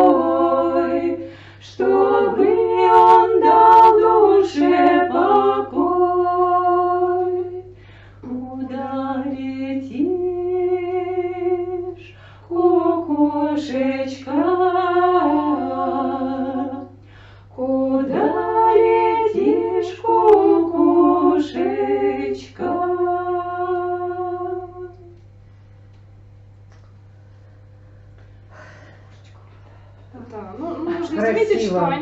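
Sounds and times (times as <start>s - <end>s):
women singing a cappella harmony: 0.0s - 25.3s.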